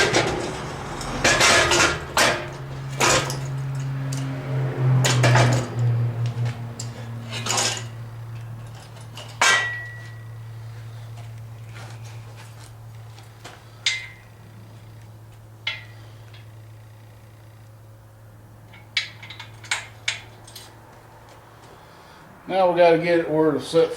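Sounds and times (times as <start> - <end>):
metal tools knocking and clinking: 0.0 - 4.3, 6.8 - 10.3
low hum: 0.0 - 21.2
sharp ringing metal clank: 9.2 - 10.5, 13.8 - 14.4.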